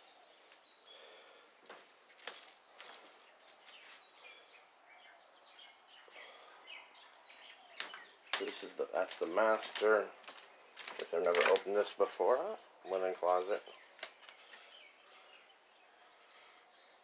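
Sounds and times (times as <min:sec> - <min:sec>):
small birds chirping: 0:00.0 - 0:17.0
thin high-pitched whine: 0:00.0 - 0:17.0.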